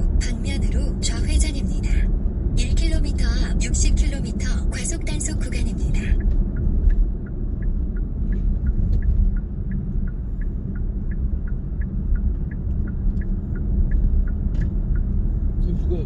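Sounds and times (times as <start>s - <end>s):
road and engine rumble in car: 0.0s - 16.0s
turn signal clicking: 3.6s - 15.7s.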